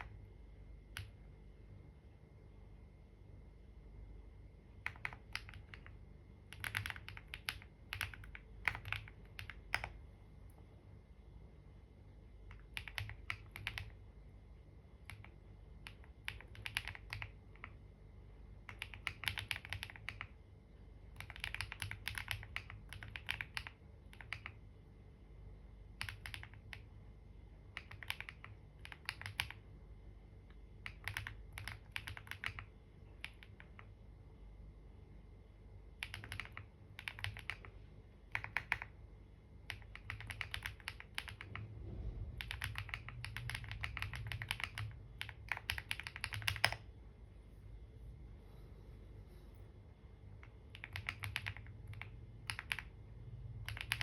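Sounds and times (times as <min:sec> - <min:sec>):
computer keyboard typing: 0:00.0 - 0:01.4, 0:04.7 - 0:10.1, 0:12.3 - 0:14.2, 0:14.9 - 0:24.8, 0:25.7 - 0:29.8, 0:30.4 - 0:34.1, 0:35.9 - 0:47.0, 0:50.3 - 0:54.0.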